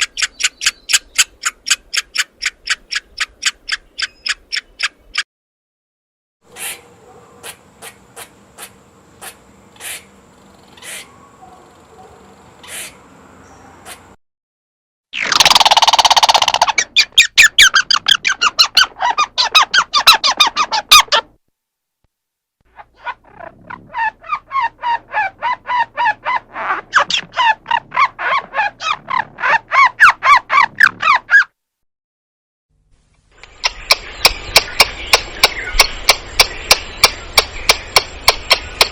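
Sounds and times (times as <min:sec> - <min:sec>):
squirrel chirping: 0:00.0 - 0:05.2, 0:15.3 - 0:21.2, 0:23.0 - 0:31.4, 0:33.4 - 0:38.9
sharp clicks: 0:33.4 - 0:38.9.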